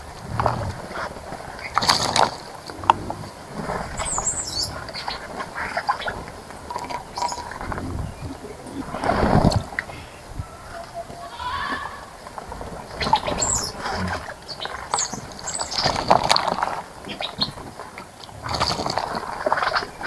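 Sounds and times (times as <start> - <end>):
birds splashing water: 0.0 - 20.0.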